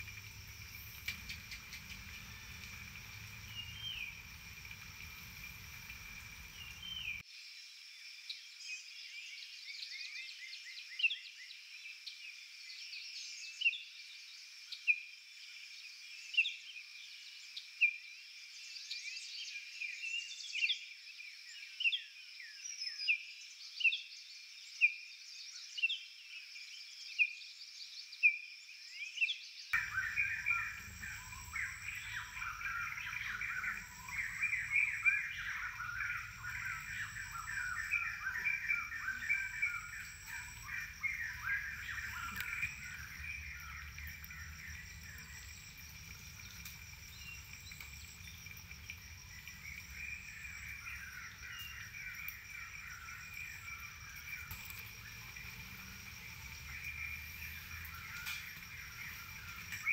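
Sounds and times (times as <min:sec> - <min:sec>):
chorus of birds chattering: 0:00.0 - 0:07.2, 0:29.8 - 0:59.9.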